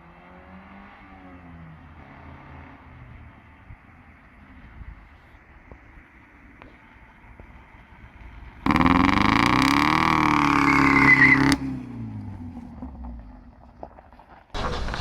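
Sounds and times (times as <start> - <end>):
damaged car engine revving: 8.6 - 12.0, 14.6 - 15.0.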